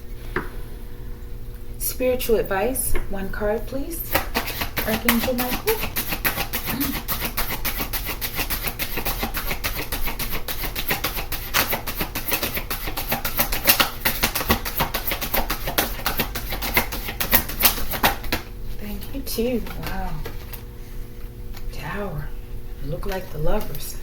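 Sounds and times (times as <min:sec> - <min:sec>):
cards being shuffled: 0:04.1 - 0:18.4.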